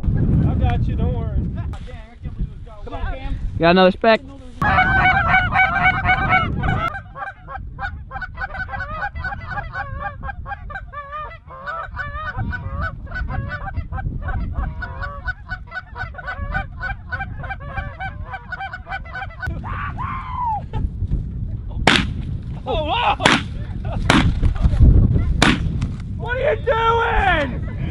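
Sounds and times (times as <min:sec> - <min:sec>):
geese honking: 0:04.6 - 0:19.5.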